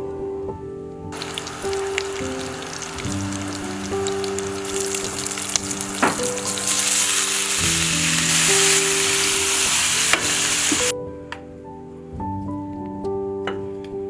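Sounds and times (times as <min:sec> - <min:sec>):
soft background music: 0:00.0 - 0:14.0
food sizzling in a pan: 0:01.2 - 0:10.9.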